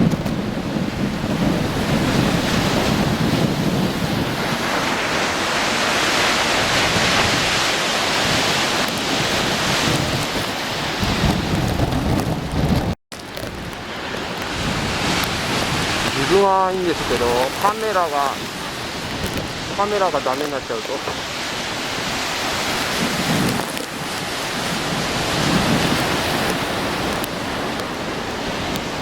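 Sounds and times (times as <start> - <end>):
heavy surf breaking on concrete: 0.0 - 29.0
wind buffeting microphone: 0.0 - 29.0.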